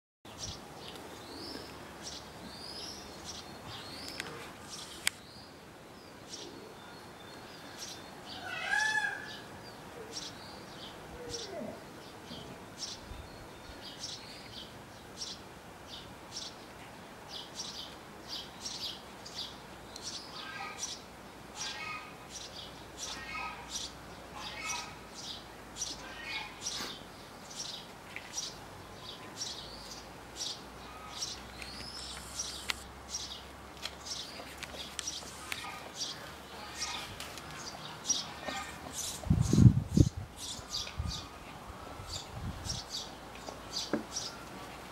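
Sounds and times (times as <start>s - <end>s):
small birds chirping: 0.3s - 8.6s, 9.2s - 44.6s
bird call rising and falling: 30.9s - 32.8s.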